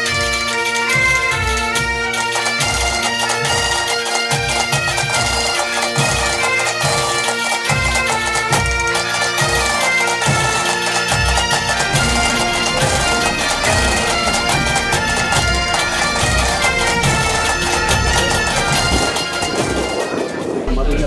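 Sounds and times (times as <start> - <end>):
bagpipe music: 0.0 - 20.8
low drum beat: 11.6 - 19.9, 20.7 - 21.0.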